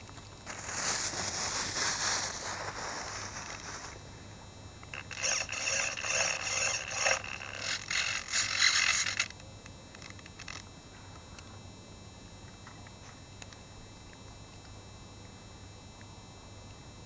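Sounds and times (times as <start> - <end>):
faint hum with high tones: 0.0 - 17.0
scraping and rubbing on microphone: 0.4 - 4.0, 5.2 - 9.2.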